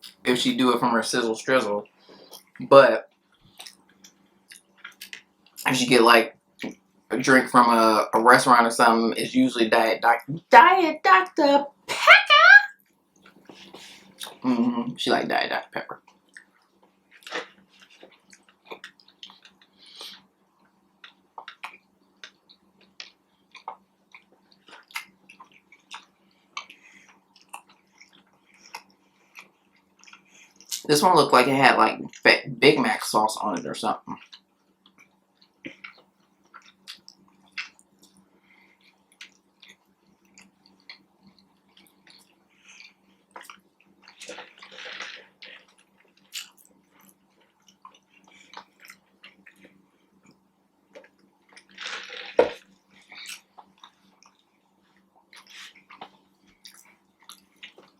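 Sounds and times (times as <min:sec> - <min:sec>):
person chewing food: 0:01.8 - 0:05.7, 0:13.2 - 0:14.4, 0:16.0 - 0:30.8, 0:34.1 - 0:57.9.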